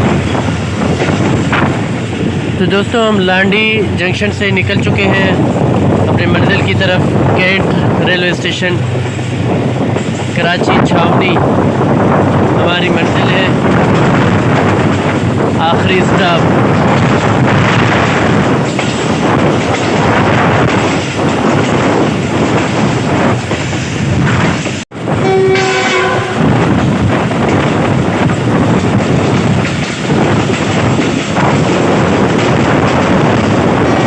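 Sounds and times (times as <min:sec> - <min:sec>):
train wheels rumbling on rail: 0:00.0 - 0:34.0
wind noise: 0:00.0 - 0:34.0
train horn: 0:25.2 - 0:26.6.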